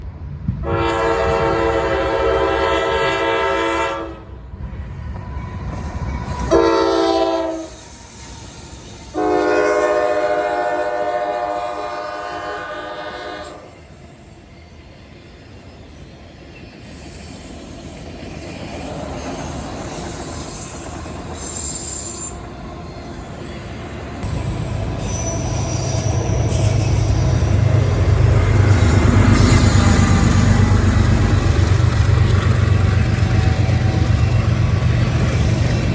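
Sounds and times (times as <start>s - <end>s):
train rumble: 0.0s - 35.9s
locomotive horn blasts: 0.6s - 4.2s, 6.5s - 7.8s, 9.1s - 13.7s
wheel squeals: 16.6s - 23.6s.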